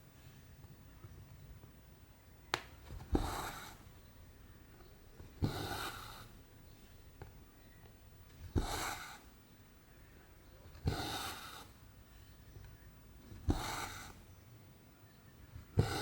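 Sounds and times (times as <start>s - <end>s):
needle tapping through canvas: 2.5s - 3.6s.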